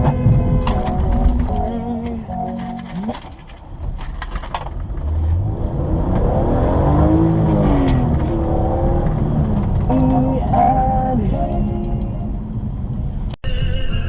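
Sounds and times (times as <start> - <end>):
low road rumble: 0.0 - 14.0
car engine revving: 4.9 - 13.1.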